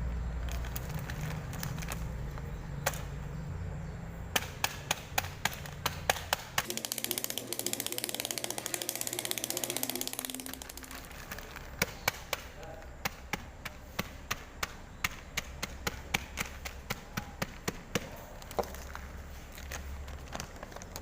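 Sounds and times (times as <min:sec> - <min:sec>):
sharp irregular taps: 0:04.3 - 0:18.8.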